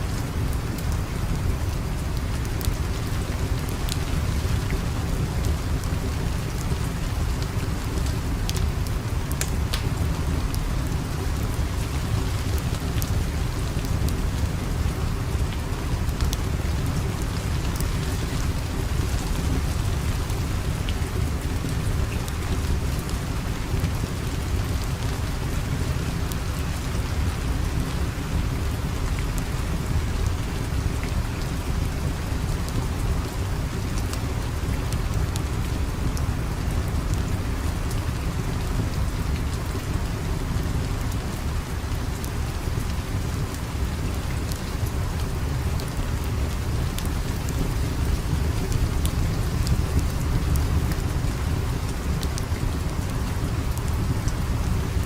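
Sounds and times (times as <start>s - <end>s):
steady rain hissing: 0.0s - 55.0s.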